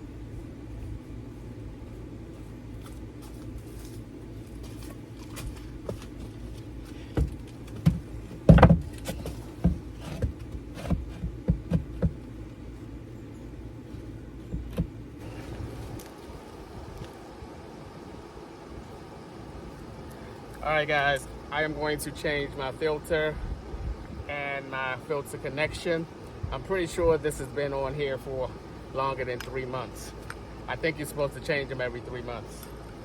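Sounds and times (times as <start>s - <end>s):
steady low hum: 0.0s - 33.0s
knocks and thumps: 7.1s - 12.2s, 14.5s - 15.0s.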